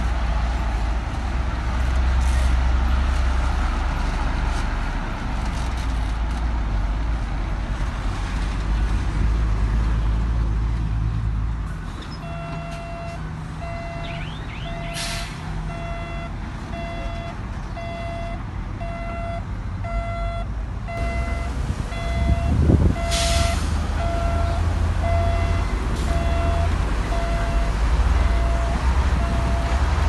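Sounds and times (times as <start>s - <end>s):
diesel engine rumble: 0.0s - 30.0s
reverse alarm beeping: 12.2s - 29.8s.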